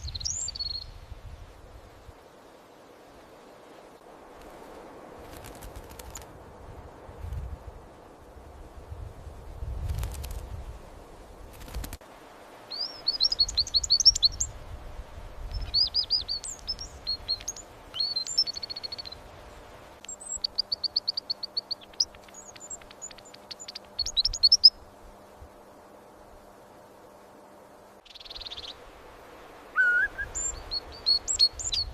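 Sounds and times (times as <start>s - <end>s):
songbird chirps and trills: 0.0s - 1.6s, 12.6s - 27.2s, 27.9s - 31.9s.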